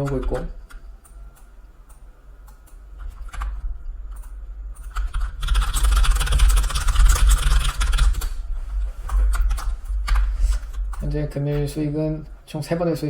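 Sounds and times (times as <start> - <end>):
low steady hum: 0.0 - 13.0
typing on computer keyboard: 2.6 - 8.4.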